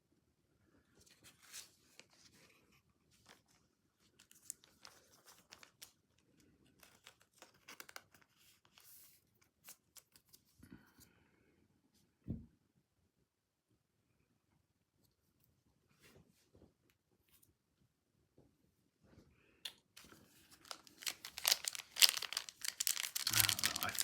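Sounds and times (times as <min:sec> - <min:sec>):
packaging crinkling and tearing: 0:04.2 - 0:09.1, 0:20.0 - 0:24.0.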